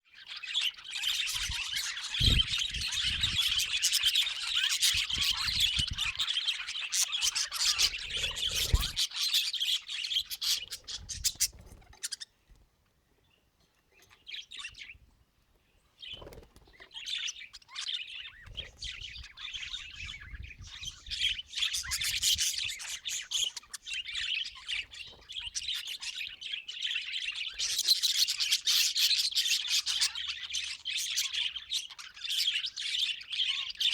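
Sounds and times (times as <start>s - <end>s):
budgerigars chattering: 0.2s - 12.3s, 16.1s - 33.9s.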